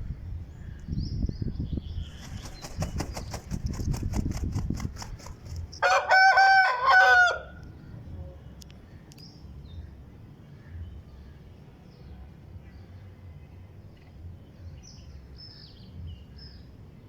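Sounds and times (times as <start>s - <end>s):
rapid wing flaps: 2.0s - 5.8s
rooster crowing: 5.8s - 7.6s.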